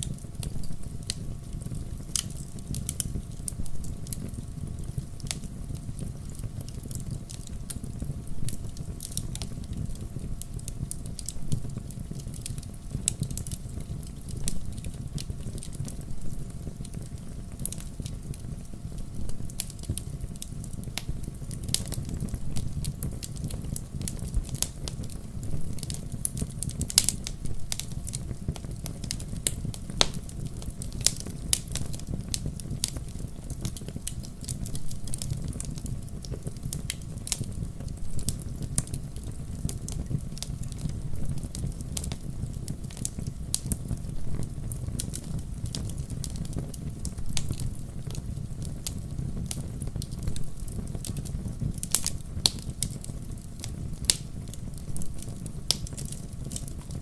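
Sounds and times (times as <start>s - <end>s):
campfire flames rumbling: 0.0s - 57.0s
fire crackles and pops: 0.0s - 57.0s.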